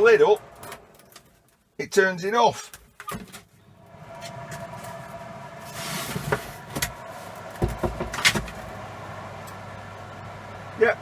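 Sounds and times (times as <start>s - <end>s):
metal hood knocking and clattering: 7.6s - 8.5s.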